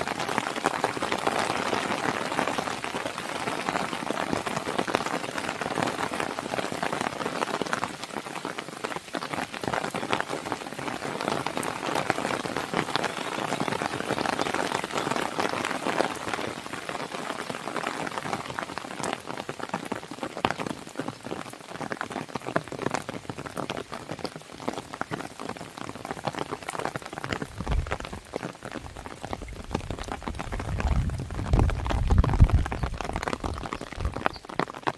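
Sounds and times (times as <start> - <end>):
rain on a window: 0.0 - 34.9
fire crackling and popping: 26.6 - 34.9.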